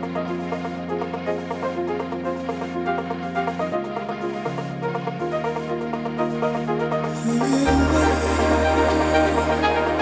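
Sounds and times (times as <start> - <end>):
synth bass line: 5.6 - 10.0.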